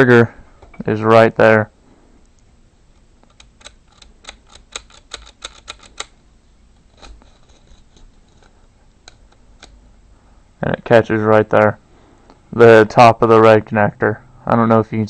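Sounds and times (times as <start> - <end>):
plastic pieces clicking: 3.2 - 6.1.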